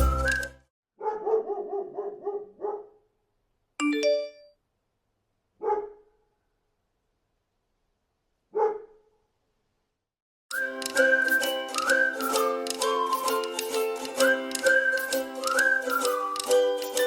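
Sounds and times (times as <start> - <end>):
dog barking: 1.0 - 3.1, 5.6 - 6.2, 8.5 - 9.2.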